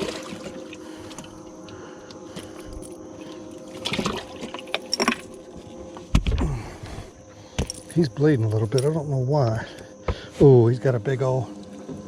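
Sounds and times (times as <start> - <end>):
water trickling and splashing: 0.0 - 1.3, 3.3 - 5.3, 10.8 - 12.0
steady hum: 0.0 - 12.0.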